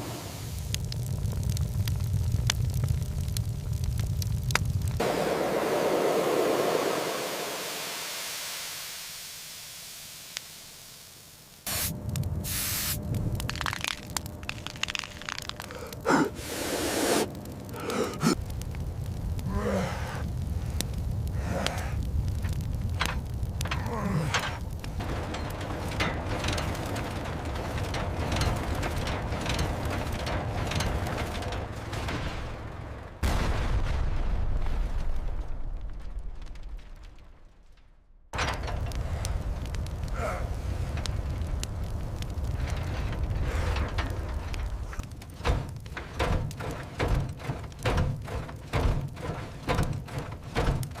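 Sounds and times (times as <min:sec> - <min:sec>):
low rumbling with clicks: 0:00.5 - 0:05.1, 0:11.7 - 0:16.5, 0:17.2 - 0:51.0
loud rushing hiss: 0:05.0 - 0:13.0, 0:16.2 - 0:17.3.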